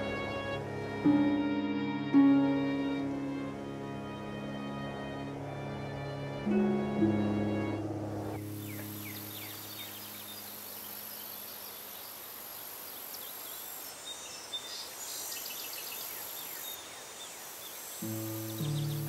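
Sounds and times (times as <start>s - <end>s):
high insect drone: 0.0s - 19.0s
bird chirps: 8.4s - 12.2s, 13.0s - 19.0s.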